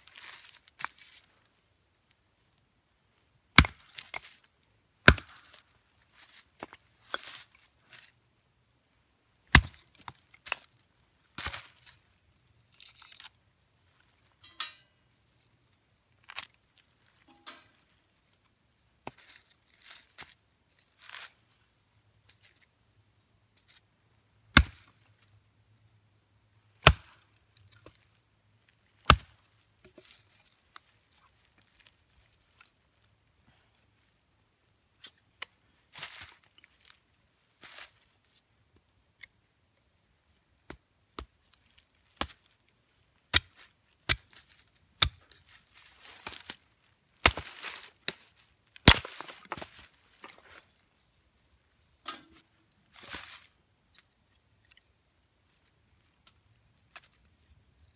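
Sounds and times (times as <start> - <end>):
axe striking wood: 3.6 - 4.3, 5.1 - 5.6, 9.5 - 10.0, 24.6 - 24.8, 26.8 - 27.2, 29.0 - 29.3, 47.2 - 47.8, 48.8 - 49.6.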